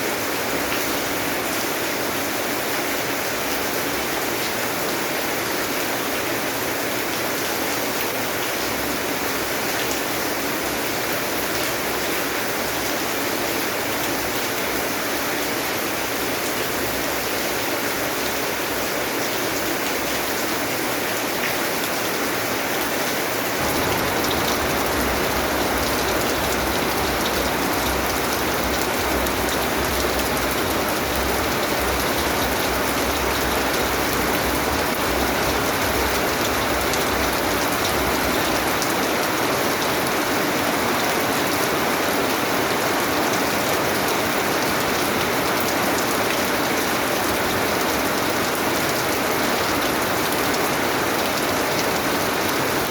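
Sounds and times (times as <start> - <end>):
steady rain patter: 0.0 - 52.9
deep low rumble: 23.6 - 32.1.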